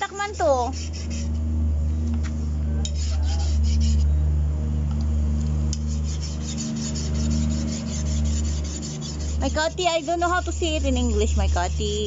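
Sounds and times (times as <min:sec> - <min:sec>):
blade scraping on sharpener: 0:00.0 - 0:01.4, 0:02.8 - 0:04.1, 0:05.8 - 0:12.0.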